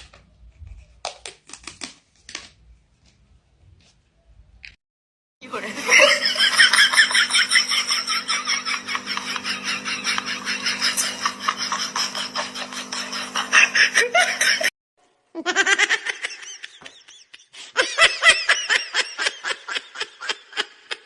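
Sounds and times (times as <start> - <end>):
people laughing: 5.5 - 14.7, 15.4 - 21.0.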